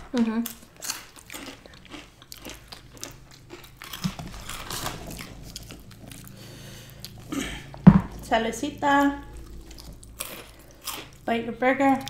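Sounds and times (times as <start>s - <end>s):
crunchy chewing: 0.1s - 8.3s, 9.0s - 11.3s.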